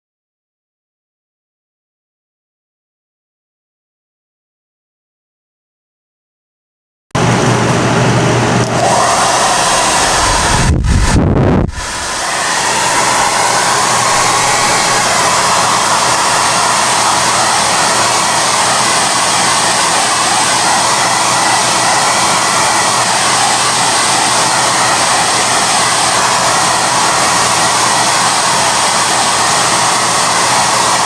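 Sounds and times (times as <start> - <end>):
hair dryer blowing: 7.2 - 31.0.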